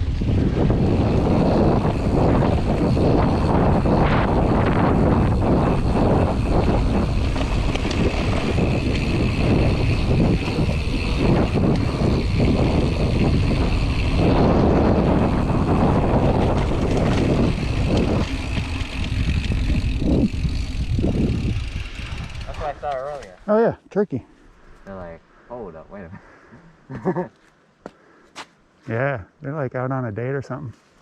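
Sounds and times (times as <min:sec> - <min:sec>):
wind rushing over microphone: 0:00.0 - 0:22.9
bike rattling and knocking: 0:00.2 - 0:23.4
tyres rolling over dirt: 0:00.8 - 0:23.3.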